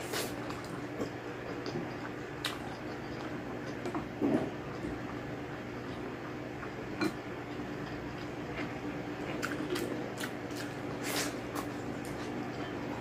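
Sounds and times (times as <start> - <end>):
close chewing and wet mouth sounds: 0.0 - 4.1, 4.7 - 13.0
low steady hum: 0.0 - 13.0.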